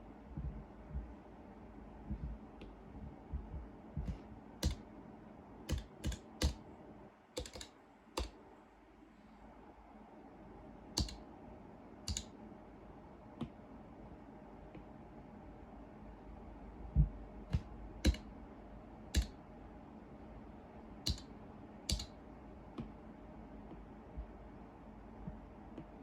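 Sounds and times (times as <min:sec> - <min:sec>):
keyboard keys clicking: 0:04.0 - 0:04.8, 0:05.7 - 0:06.6, 0:07.4 - 0:08.4, 0:11.0 - 0:11.2, 0:12.1 - 0:12.3, 0:17.5 - 0:18.3, 0:19.2 - 0:19.4, 0:21.1 - 0:21.3, 0:21.9 - 0:22.2.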